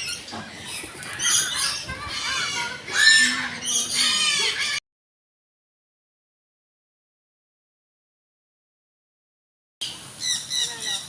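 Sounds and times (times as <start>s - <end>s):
birds squawking: 0.0s - 4.8s, 9.8s - 11.0s.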